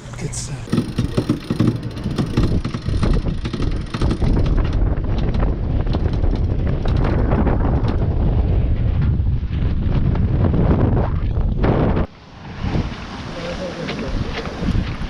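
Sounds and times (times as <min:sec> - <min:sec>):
clicks and rattles: 0:00.6 - 0:08.1
wind buffeting microphone: 0:00.6 - 0:15.0.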